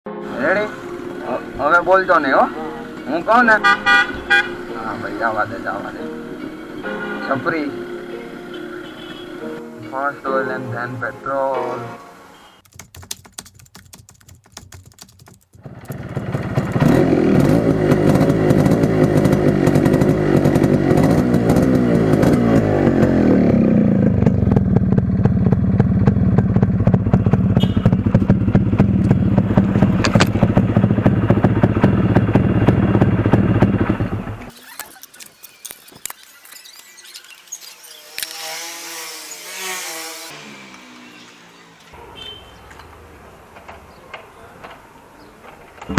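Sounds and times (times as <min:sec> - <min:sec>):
motorcycle engine revving: 0:15.6 - 0:34.6, 0:37.8 - 0:43.4.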